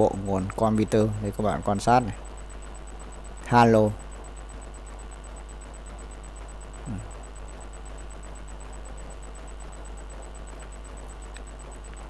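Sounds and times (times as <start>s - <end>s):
electrical mains hum: 0.0s - 12.0s
high whine and hiss: 0.0s - 12.0s
falling vocal sound: 6.9s - 7.1s.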